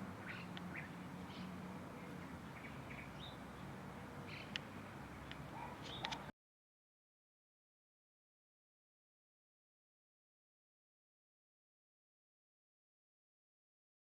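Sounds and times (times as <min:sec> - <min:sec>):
small birds chirping: 0:00.0 - 0:06.3.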